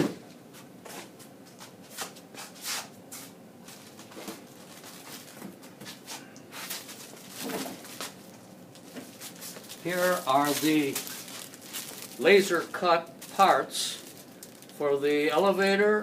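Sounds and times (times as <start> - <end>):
packaging rustling: 6.6 - 15.1.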